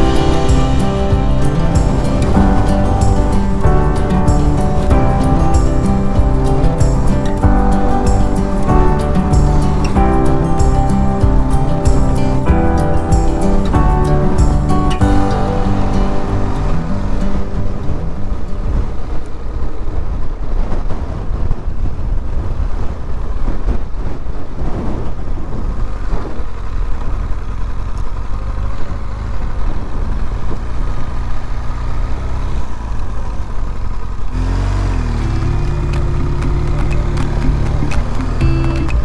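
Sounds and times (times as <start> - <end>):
background music: 0.0 - 19.2, 35.4 - 39.0
wind and road noise: 0.0 - 39.0
motorcycle engine running: 25.8 - 39.0.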